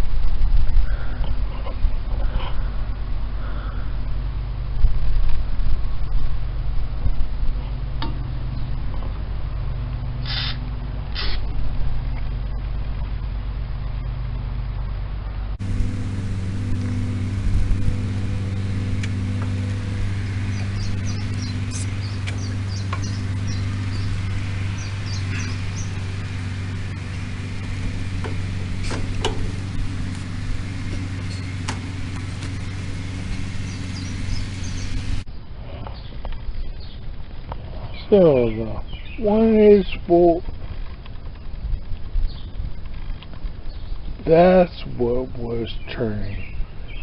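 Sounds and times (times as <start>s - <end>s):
engine idling: 6.0s - 35.9s
birds chirping: 15.6s - 35.2s, 37.8s - 40.4s, 45.5s - 47.0s
sharp clicks: 19.0s - 19.6s, 20.5s - 23.2s, 31.2s - 32.6s.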